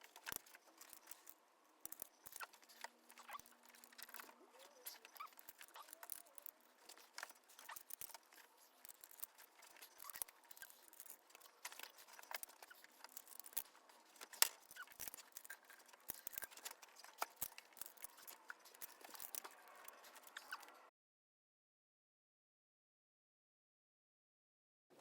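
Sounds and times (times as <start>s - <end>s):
clicks and scrapes of hand tools: 0.0s - 20.8s.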